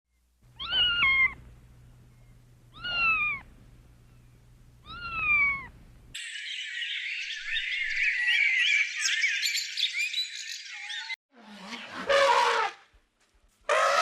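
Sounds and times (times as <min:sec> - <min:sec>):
cat meowing: 0:00.6 - 0:01.4, 0:02.7 - 0:03.5, 0:04.8 - 0:05.7
high chirping: 0:02.1 - 0:11.2.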